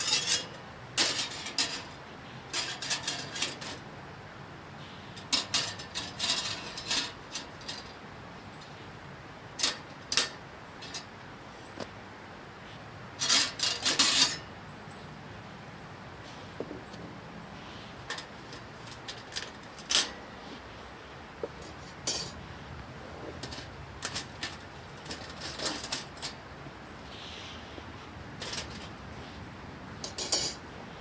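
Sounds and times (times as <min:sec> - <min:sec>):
metal camp gear clinking: 0:00.0 - 0:03.8, 0:05.2 - 0:08.8, 0:09.6 - 0:11.1, 0:13.2 - 0:14.5, 0:18.0 - 0:20.4, 0:21.4 - 0:22.4, 0:23.1 - 0:26.5, 0:28.4 - 0:29.0, 0:30.0 - 0:30.6.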